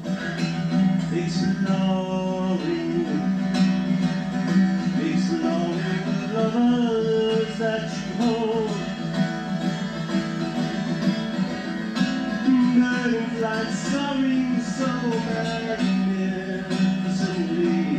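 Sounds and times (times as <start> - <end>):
acoustic guitar plucked and strummed: 0.0 - 17.9
person singing: 1.0 - 3.9, 4.7 - 9.1, 12.3 - 17.9.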